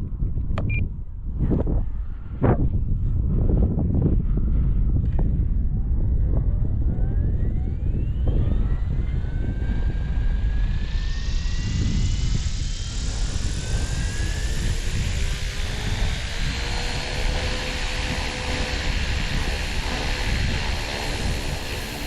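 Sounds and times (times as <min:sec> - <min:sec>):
wind buffeting microphone: 0:00.0 - 0:22.0
helicopter rotor rush: 0:01.5 - 0:22.0
electric motor whine: 0:06.1 - 0:22.0.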